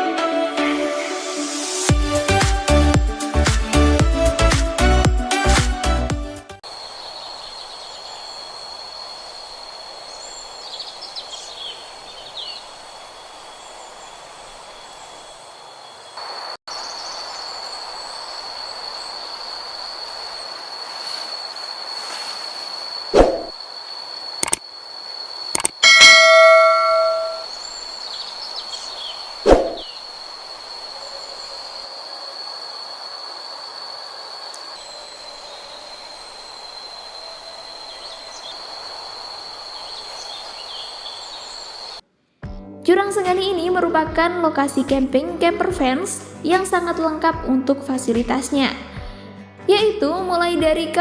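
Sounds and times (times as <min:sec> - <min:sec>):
high-pitched insect drone: 0:06.6 - 0:42.0
high-pitched whine: 0:22.8 - 0:27.6, 0:29.5 - 0:42.0
metal object clanging: 0:25.8 - 0:27.4.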